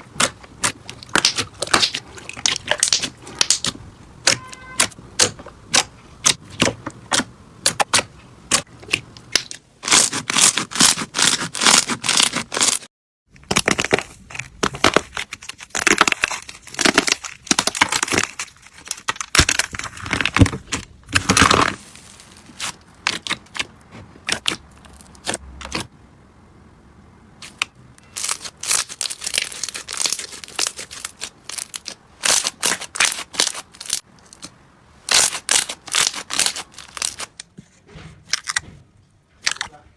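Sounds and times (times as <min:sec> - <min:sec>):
slime clicking and popping: 0:00.1 - 0:09.6.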